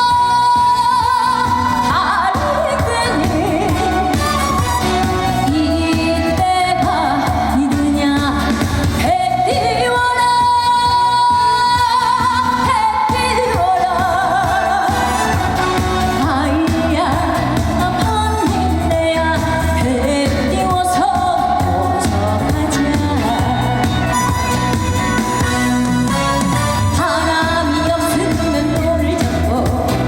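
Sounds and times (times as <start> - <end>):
backing track with steady beat: 0.0 - 30.0
woman singing with vibrato: 0.0 - 30.0.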